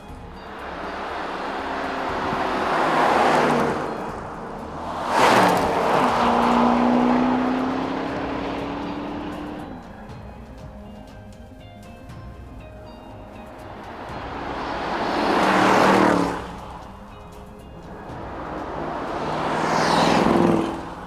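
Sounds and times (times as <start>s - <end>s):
car driving past at speed: 0.4s - 9.8s, 13.6s - 17.0s, 17.8s - 21.0s.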